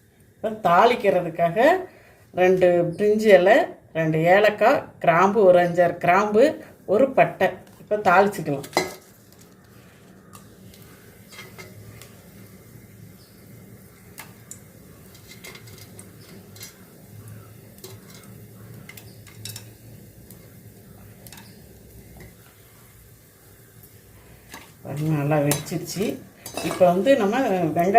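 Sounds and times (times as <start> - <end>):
spices frying in oil: 0.0 - 27.9
sharp crackles and pops: 7.5 - 27.9.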